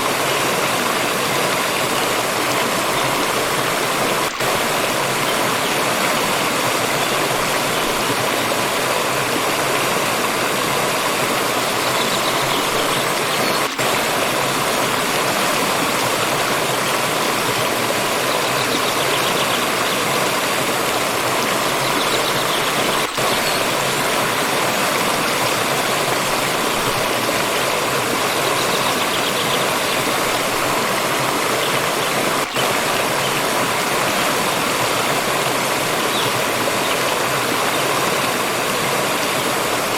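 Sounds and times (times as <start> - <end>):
fast-flowing stream rushing: 0.0 - 39.9.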